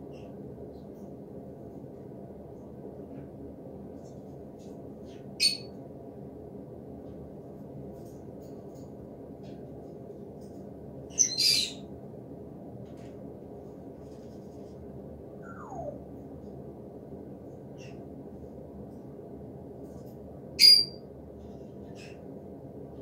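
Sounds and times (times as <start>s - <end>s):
low outdoor rumble: 0.0s - 23.0s
harsh bird squawks: 15.4s - 16.0s, 20.6s - 21.0s.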